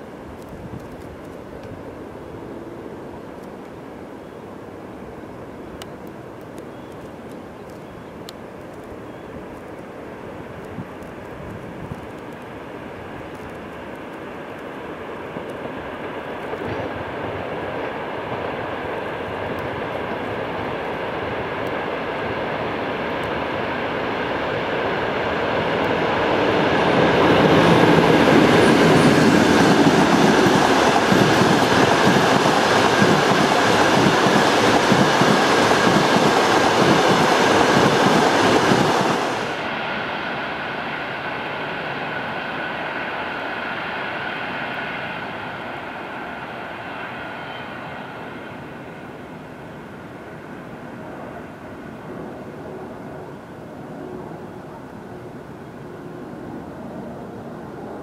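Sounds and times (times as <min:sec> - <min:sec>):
train wheels clattering over rails: 0:15.4 - 0:18.6, 0:25.6 - 0:39.6.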